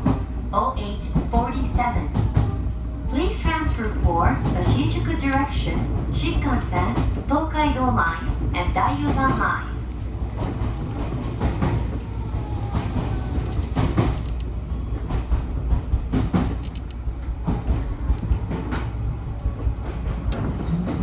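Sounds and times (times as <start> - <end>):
electric train running: 3.4 - 21.0
wheels clacking over rail joints: 4.3 - 21.0.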